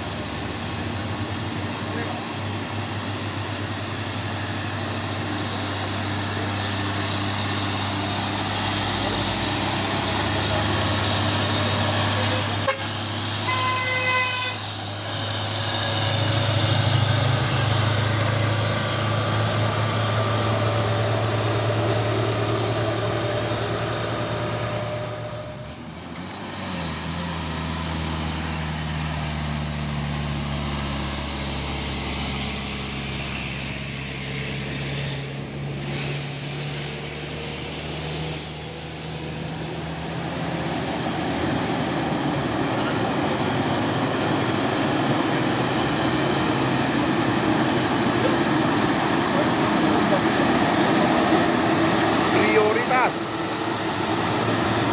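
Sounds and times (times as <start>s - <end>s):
diesel truck engines running: 0.0s - 54.9s
truck horn toot: 12.1s - 14.7s.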